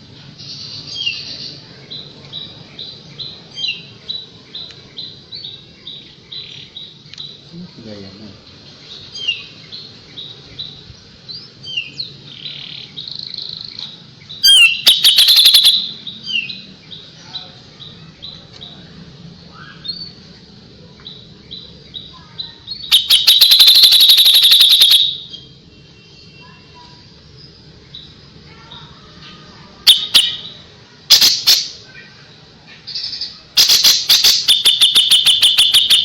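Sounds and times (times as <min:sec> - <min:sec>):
rapid rattling bird call: 0:14.4 - 0:16.0, 0:22.8 - 0:25.3, 0:29.8 - 0:32.0, 0:32.9 - 0:36.0
songbird singing high notes: 0:14.4 - 0:16.6, 0:22.7 - 0:25.6, 0:29.9 - 0:31.8, 0:33.6 - 0:36.0.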